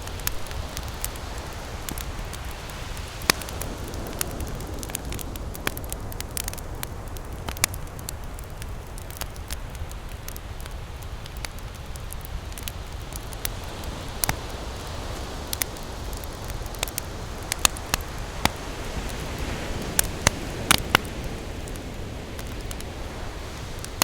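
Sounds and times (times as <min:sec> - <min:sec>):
campfire crackling and popping: 0:00.0 - 0:24.0
ocean surf: 0:12.8 - 0:24.0.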